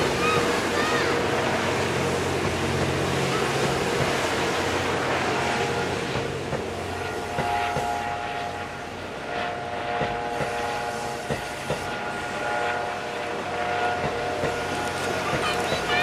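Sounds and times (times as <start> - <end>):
train running noise: 0.0 - 16.0
wheels clacking over rail joints: 14.0 - 16.0.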